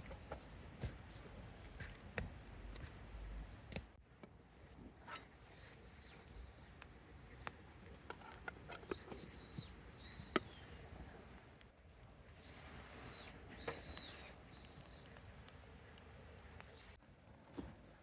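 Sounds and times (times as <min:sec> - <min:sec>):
campfire crackling: 0:00.0 - 0:18.0
thin high whistles: 0:12.4 - 0:15.0.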